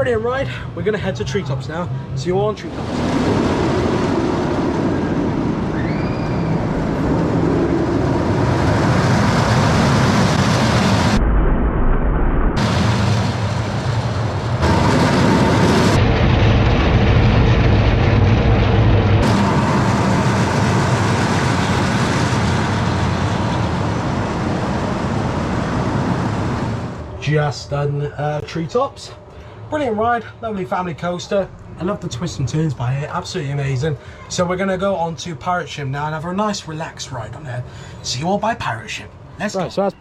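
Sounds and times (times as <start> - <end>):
roller coaster rumbling on track: 0.0 - 11.2, 12.6 - 40.0
wind rushing over microphone: 2.6 - 27.2.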